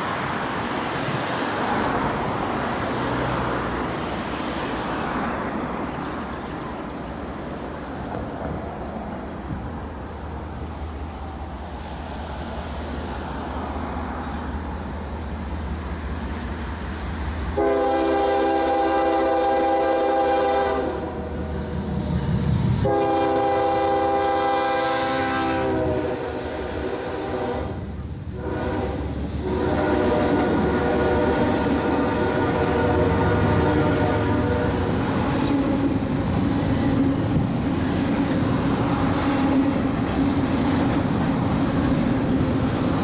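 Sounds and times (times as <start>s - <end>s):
diesel locomotive rumbling: 0.0s - 43.0s
train air horn blasts: 17.6s - 21.4s, 22.8s - 36.0s.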